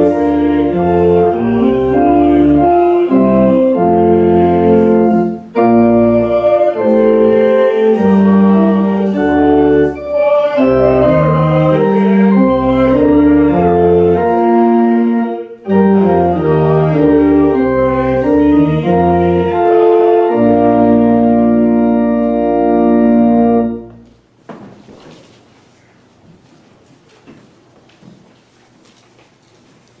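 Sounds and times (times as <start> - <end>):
organ playing slow chords: 0.0 - 24.1.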